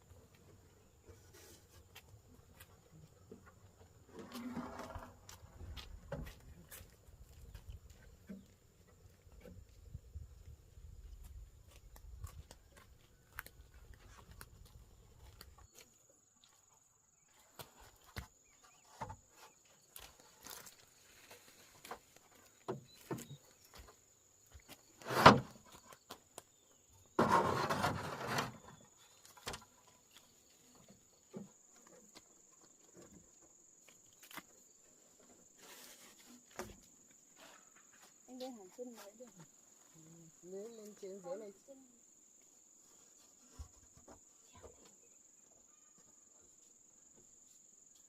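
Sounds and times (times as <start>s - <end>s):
noisy scraping rustle: 4.1s - 5.6s, 24.9s - 25.9s, 27.2s - 29.1s, 35.6s - 36.6s.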